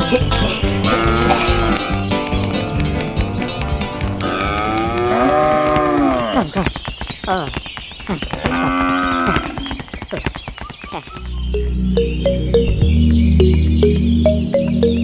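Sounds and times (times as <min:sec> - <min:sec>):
sharp clicks: 0:00.0 - 0:05.2.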